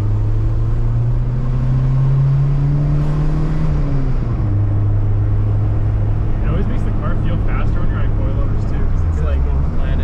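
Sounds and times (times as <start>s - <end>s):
car engine accelerating: 0.0s - 10.0s
road rumble: 0.0s - 10.0s.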